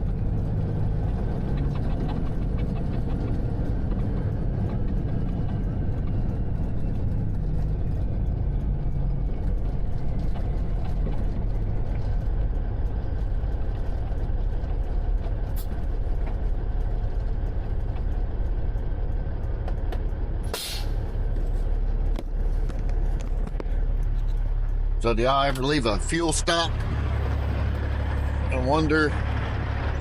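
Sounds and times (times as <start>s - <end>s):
diesel truck engine running: 0.0s - 30.0s
air brake hiss: 20.5s - 21.0s.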